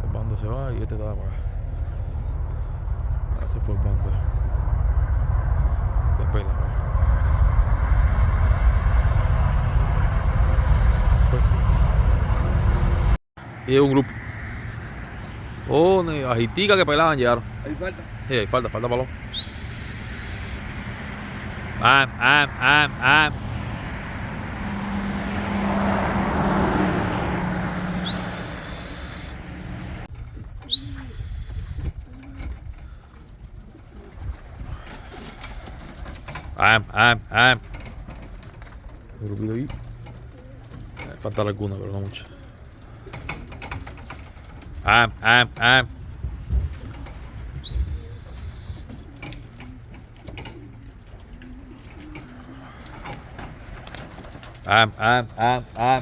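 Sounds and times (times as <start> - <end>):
rumbling noise with low hum: 0.0 - 51.8
loud rising whistle: 2.2 - 13.2, 19.2 - 20.9, 22.6 - 29.9, 30.6 - 32.1, 47.6 - 49.0
high rising whistles: 19.2 - 20.8, 26.5 - 30.0, 30.6 - 32.1, 47.6 - 49.1
pigeon cooing: 23.5 - 29.4, 39.8 - 41.0, 45.6 - 54.6.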